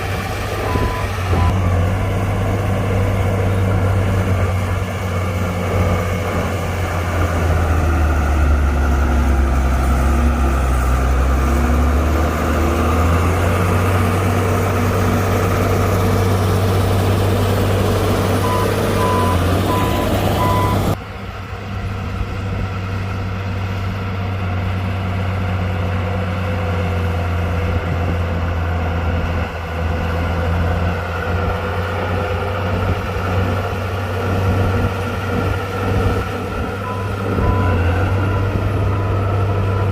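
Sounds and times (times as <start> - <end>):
heavy diesel machinery running: 0.0 - 39.9
reversing alarm beeping: 0.6 - 1.9, 18.4 - 21.0, 36.8 - 39.9.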